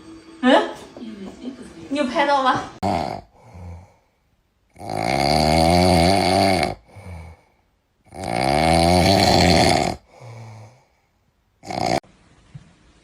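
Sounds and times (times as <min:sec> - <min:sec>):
loud rasping snores: 0:02.8 - 0:04.0, 0:04.7 - 0:07.5, 0:08.1 - 0:10.9, 0:11.6 - 0:12.0.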